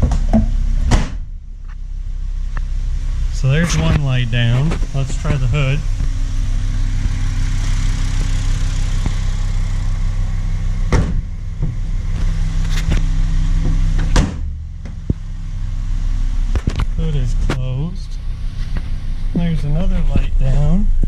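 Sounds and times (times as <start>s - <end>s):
car hood slamming shut: 0.0s - 1.3s, 10.9s - 11.8s, 14.0s - 15.0s
car engine idling: 0.0s - 21.0s.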